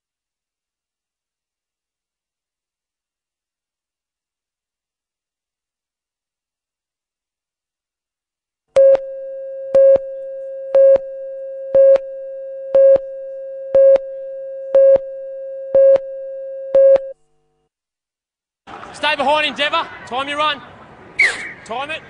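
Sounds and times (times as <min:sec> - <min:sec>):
countdown beeps: 0:08.8 - 0:17.1.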